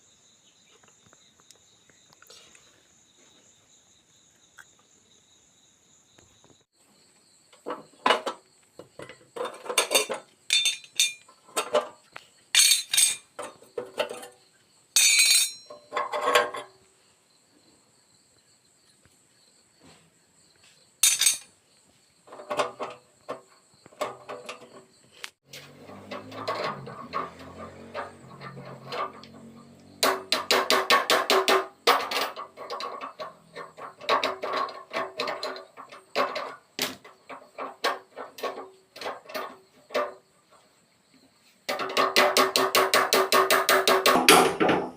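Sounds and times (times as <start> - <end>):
metal parts clinking: 9.4 - 11.8, 12.5 - 14.3, 15.0 - 16.7, 21.0 - 21.5.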